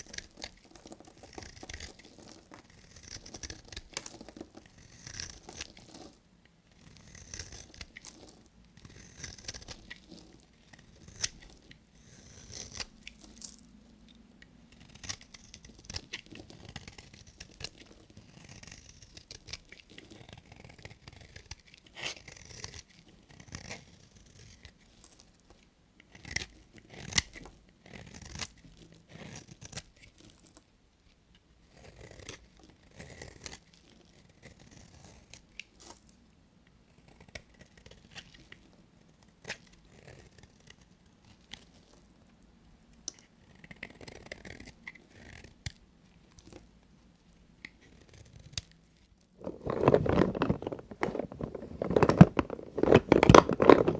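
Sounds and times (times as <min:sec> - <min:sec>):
knife cutting soap: 0:00.0 - 0:25.1, 0:26.0 - 0:30.2, 0:31.7 - 0:35.8.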